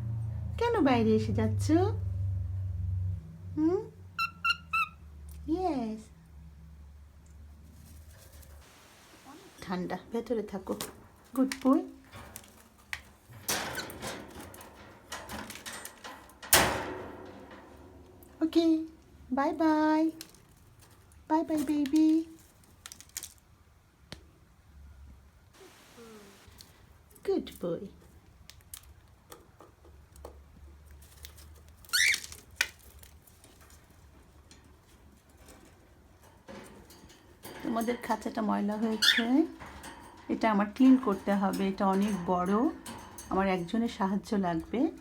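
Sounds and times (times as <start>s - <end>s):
wire birdcage rattling: 7.6s - 9.3s, 10.1s - 23.4s, 30.9s - 45.0s
cage door clacking shut: 12.0s - 18.4s, 35.3s - 45.0s.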